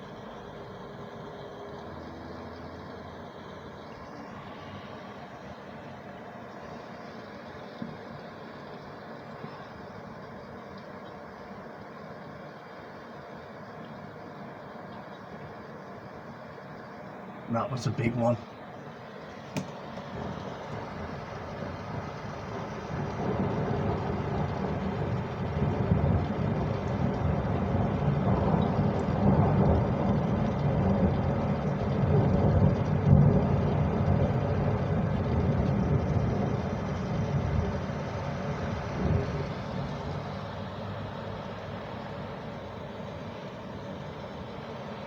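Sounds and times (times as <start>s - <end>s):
thunder rumbling: 20.0s - 43.0s.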